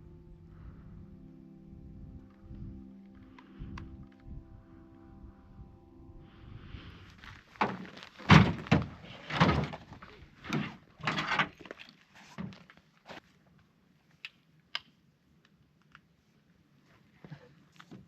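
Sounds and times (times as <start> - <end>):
crunchy rustling: 7.1 - 13.4
irregular thuds: 7.6 - 10.8.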